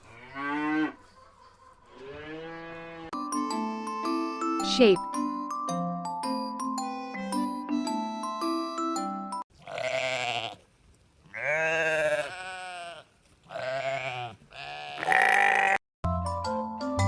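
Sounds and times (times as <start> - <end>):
tinkly mallet percussion jingle: 3.2 - 9.4
sheep bleating: 9.6 - 10.6, 11.3 - 15.8.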